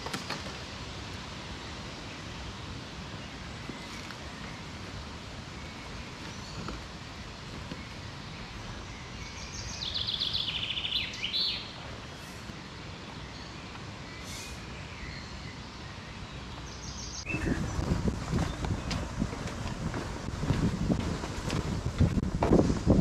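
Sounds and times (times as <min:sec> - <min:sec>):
outdoor hiss: 0:00.0 - 0:23.0
songbird trilling: 0:07.8 - 0:11.8, 0:16.6 - 0:17.9
wind buffeting microphone: 0:17.2 - 0:23.0.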